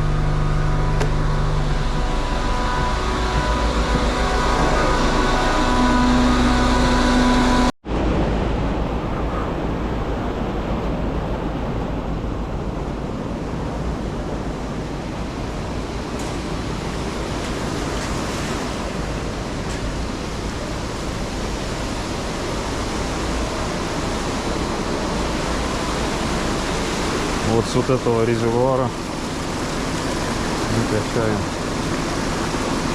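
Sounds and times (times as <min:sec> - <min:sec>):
truck engine hum: 0:00.0 - 0:07.8
rushing noise of pumped water: 0:00.0 - 0:32.9.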